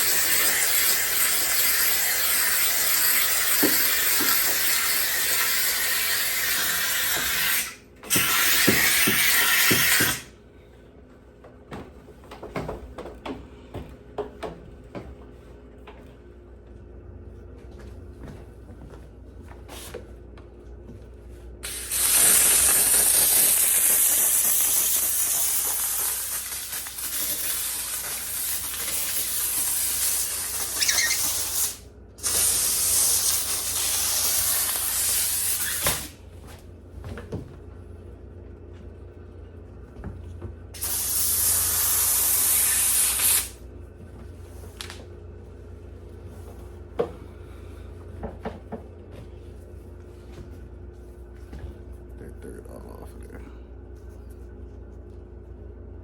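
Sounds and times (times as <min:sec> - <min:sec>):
steam cleaner hissing: 0:00.0 - 0:10.3, 0:21.6 - 0:36.2, 0:40.8 - 0:43.6.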